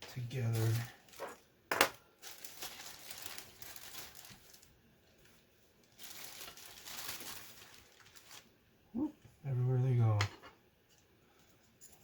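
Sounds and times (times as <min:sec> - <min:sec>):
plastic parts rustling: 0:00.0 - 0:08.5.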